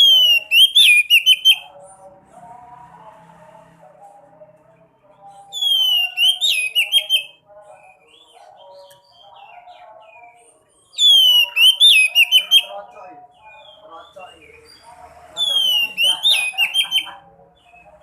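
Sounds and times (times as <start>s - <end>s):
birds whistling sharp notes: 0.0s - 1.7s, 5.5s - 12.7s, 13.4s - 18.0s
low bird warbling: 5.5s - 10.0s.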